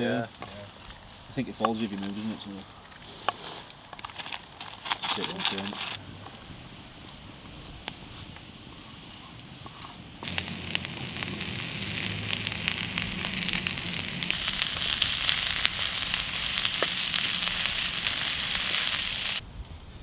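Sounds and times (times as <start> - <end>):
sausage sizzling in frying pan: 6.0 - 19.4.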